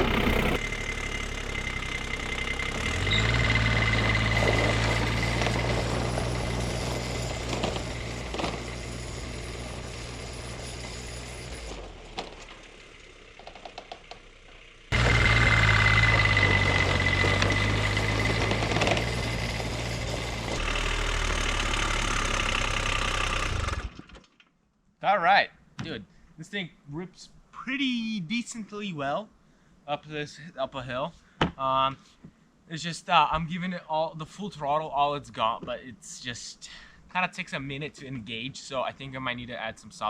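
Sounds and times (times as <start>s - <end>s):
small diesel engine at full throttle: 0.0s - 24.2s.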